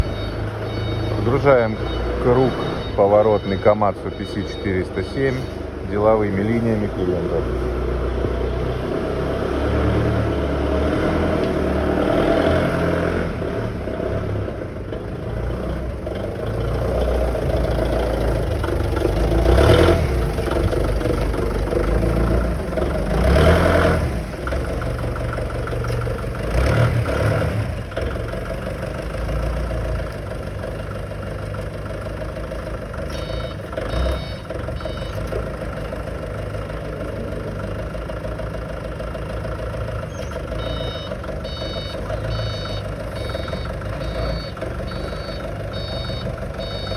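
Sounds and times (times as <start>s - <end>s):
warning beeps: 0.0s - 5.6s, 33.1s - 35.5s, 40.1s - 46.9s
vehicle engine revving: 0.0s - 46.9s.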